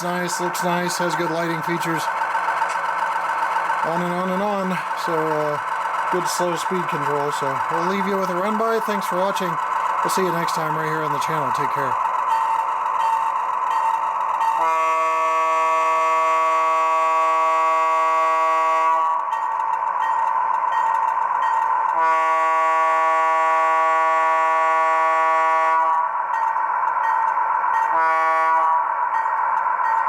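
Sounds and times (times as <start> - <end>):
high turbine whine: 0.0 - 30.0
train horn blasts: 12.3 - 19.5, 21.9 - 26.1, 27.8 - 29.3.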